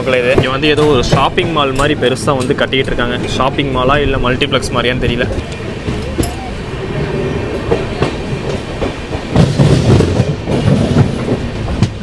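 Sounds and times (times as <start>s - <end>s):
train coach rumbling on track: 0.0s - 12.0s
wheels clattering over rail joints: 0.0s - 12.0s
scattered knocks: 0.2s - 3.0s.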